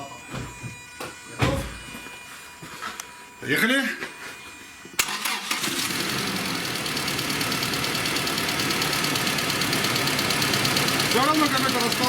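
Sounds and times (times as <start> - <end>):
car engine running rough: 5.3 - 12.0.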